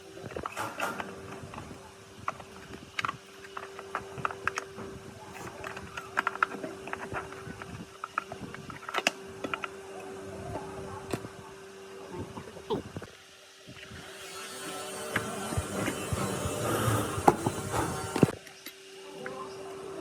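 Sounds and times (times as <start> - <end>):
steady hum: 13.8 - 18.4
hand tools clicking and tapping: 15.1 - 18.4.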